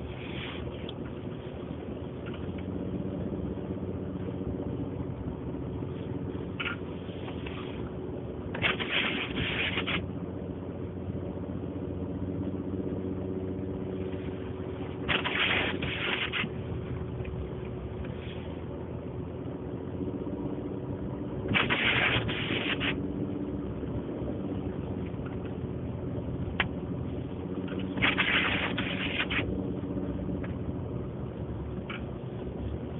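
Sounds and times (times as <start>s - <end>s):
truck engine and road drone: 0.0s - 32.9s
scraping swish of snow: 0.1s - 0.8s, 8.6s - 10.0s, 15.1s - 16.5s, 21.6s - 23.0s, 28.0s - 29.5s.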